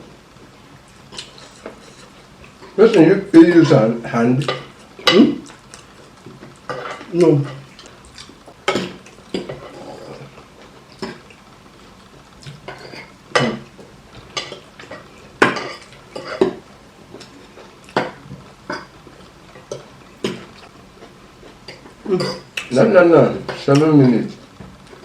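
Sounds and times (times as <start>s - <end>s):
cutlery clinking against plates: 6.7s - 7.7s, 14.3s - 16.6s, 21.7s - 22.7s.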